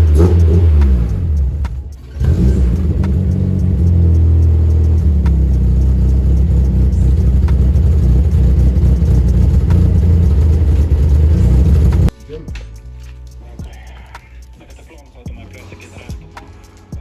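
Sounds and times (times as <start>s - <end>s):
petrol engine running steadily: 0.0s - 12.1s.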